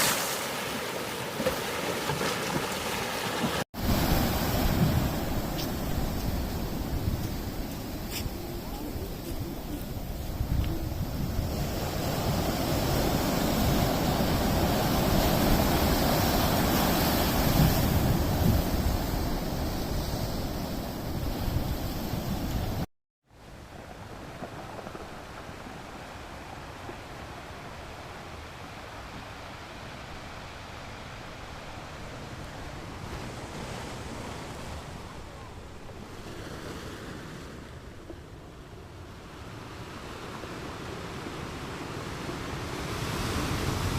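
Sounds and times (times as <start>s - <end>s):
sea waves washing ashore: 0.0s - 43.9s
wind: 0.0s - 43.9s
wind buffeting microphone: 3.8s - 22.8s.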